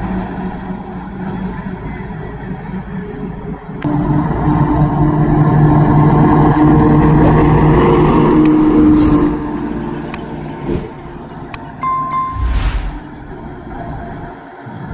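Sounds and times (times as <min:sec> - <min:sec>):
heavy truck engine running: 0:00.0 - 0:14.9
high-pitched tone: 0:11.8 - 0:14.2.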